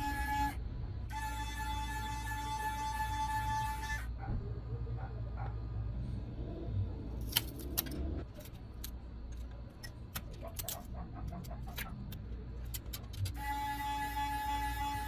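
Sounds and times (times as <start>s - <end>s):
low steady hum: 0.0s - 15.0s
small tools clicking and tapping: 7.3s - 13.4s.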